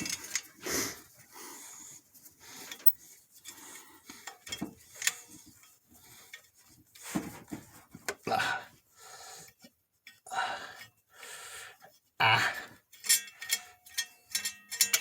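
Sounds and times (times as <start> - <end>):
hand tools clinking on metal: 13.0 - 15.0.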